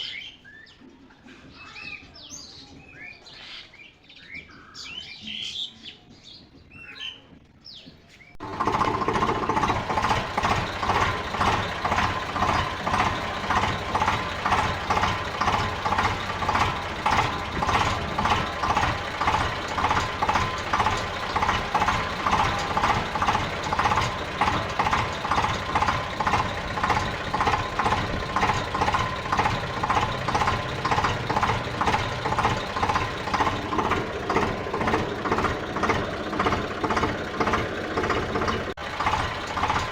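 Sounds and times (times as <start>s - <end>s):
pulsing engine running: 8.4s - 39.9s.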